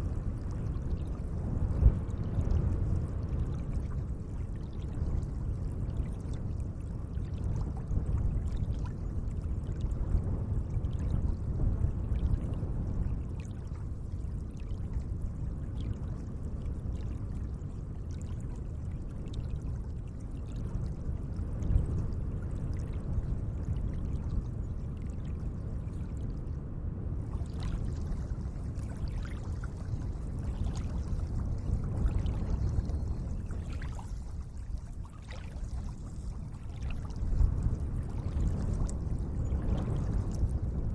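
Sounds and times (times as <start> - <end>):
small water splashes: 27.2 - 40.3
lake water lapping: 33.4 - 37.2.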